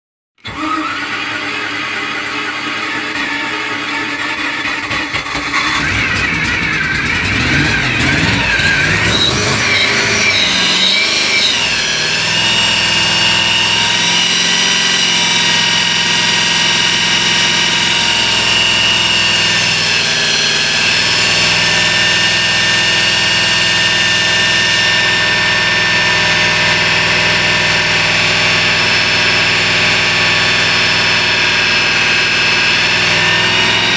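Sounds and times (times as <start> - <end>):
boat engine running: 4.2 - 33.9.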